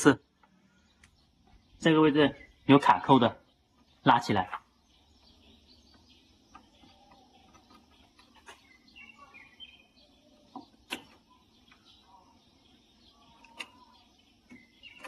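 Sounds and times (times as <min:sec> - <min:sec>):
birds chirping faintly: 0:00.0 - 0:15.0.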